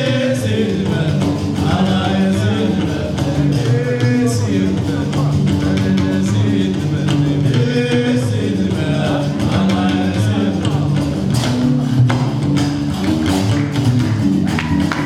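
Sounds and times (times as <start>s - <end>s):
man singing: 0.0s - 11.6s
plucked bass lute: 0.0s - 15.0s.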